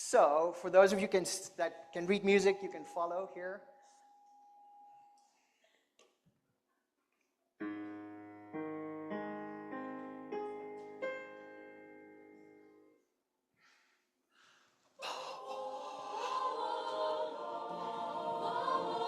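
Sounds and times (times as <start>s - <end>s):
piano notes: 7.6s - 13.0s
choir singing: 15.0s - 19.0s.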